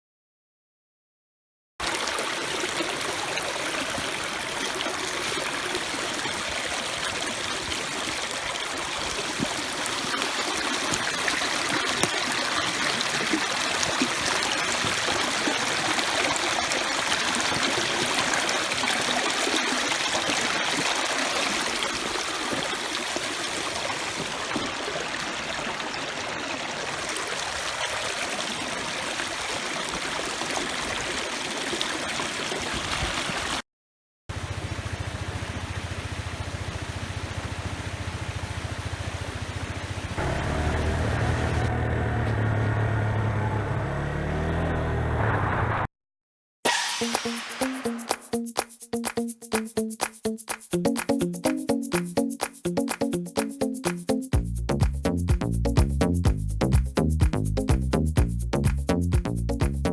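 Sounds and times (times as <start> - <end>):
stream flowing: 1.8 - 33.6, 34.3 - 41.7.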